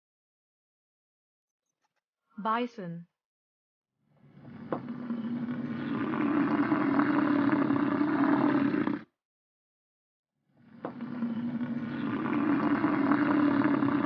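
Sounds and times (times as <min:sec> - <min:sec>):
bison bellowing: 0:10.8 - 0:14.0.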